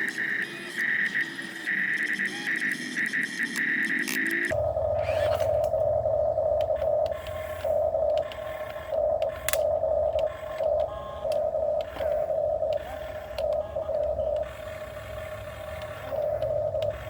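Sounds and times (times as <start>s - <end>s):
truck reversing alarm beeping: 0.0s - 17.0s
diesel engine rumble: 4.5s - 17.0s.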